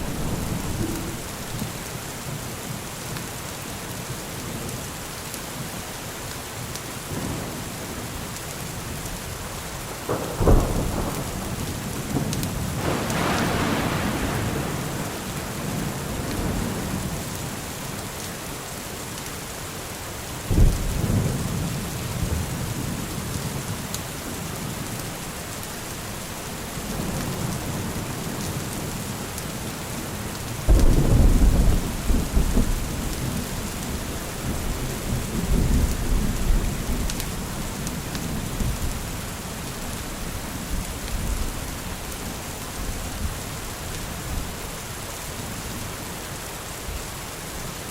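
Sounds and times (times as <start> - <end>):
rolling thunder: 0.0 - 1.9, 10.0 - 17.5, 30.6 - 39.2
steady rain: 0.0 - 47.9.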